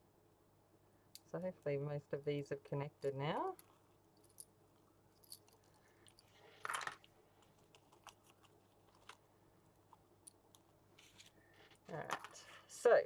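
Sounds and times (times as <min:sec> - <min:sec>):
paper rustling: 0:11.0 - 0:12.7.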